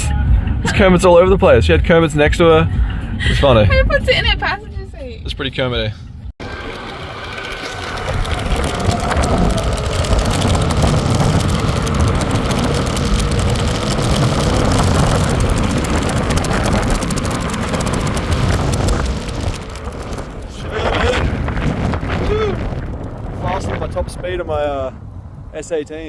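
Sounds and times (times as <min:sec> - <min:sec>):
road rumble: 0:00.0 - 0:26.0
wind rushing over microphone: 0:06.3 - 0:26.0.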